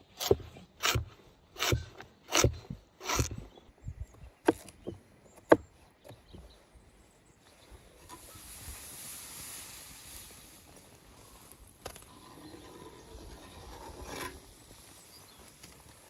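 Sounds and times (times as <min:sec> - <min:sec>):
steady soft hiss: 0:07.5 - 0:11.9.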